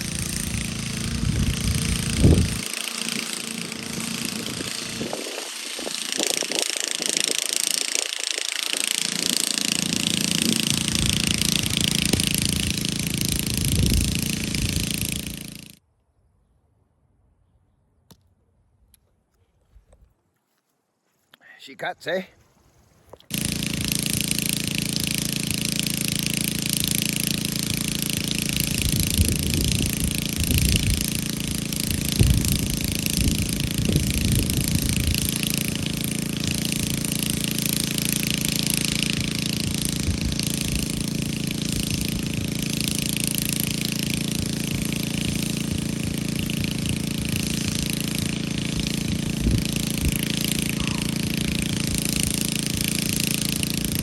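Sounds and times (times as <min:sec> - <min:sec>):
chainsaw cutting: 0:00.0 - 0:15.8, 0:23.2 - 0:54.0.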